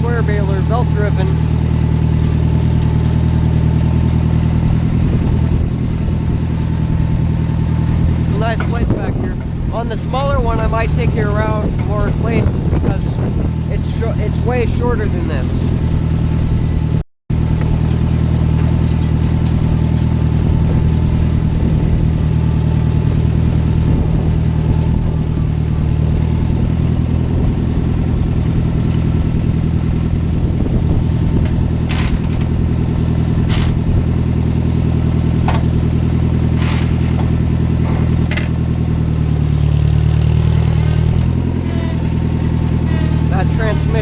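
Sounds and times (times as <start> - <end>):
tractor engine running: 0.0 - 44.0
transmission whine: 0.0 - 44.0
sharp knocks and rattles: 0.7 - 14.6, 30.3 - 44.0.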